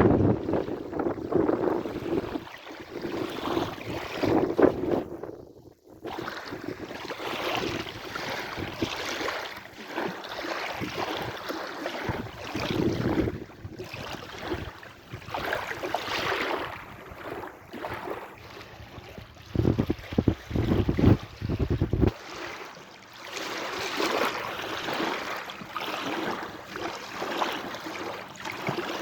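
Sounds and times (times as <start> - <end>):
sea waves washing in: 6.1 - 29.0.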